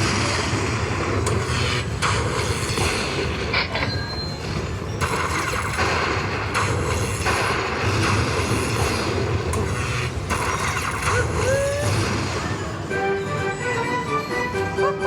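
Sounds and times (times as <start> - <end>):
chiming notes: 13.0 - 15.0.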